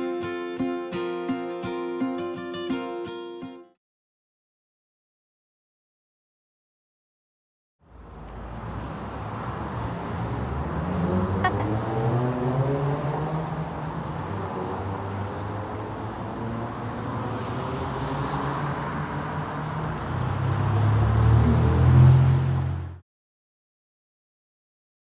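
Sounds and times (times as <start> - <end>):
car engine and road noise: 7.8 - 23.0.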